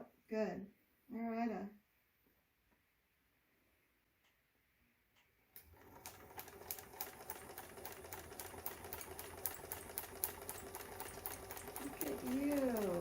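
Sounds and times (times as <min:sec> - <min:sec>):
sewing machine running: 0:05.6 - 0:13.0.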